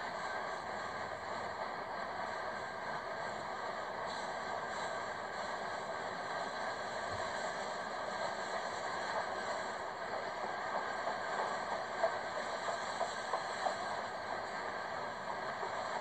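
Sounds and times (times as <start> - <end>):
train rumbling over bridge: 0.0 - 16.0.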